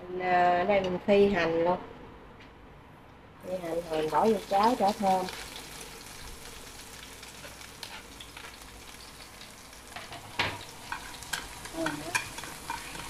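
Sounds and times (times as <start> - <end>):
onions sizzling in hot oil: 3.4 - 13.0
chopsticks tapping and scraping pan: 10.0 - 13.0.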